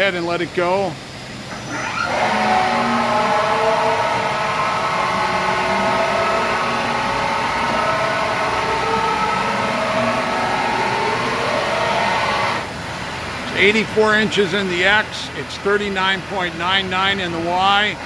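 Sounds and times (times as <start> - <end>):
machining center mechanical whine: 0.0 - 18.0.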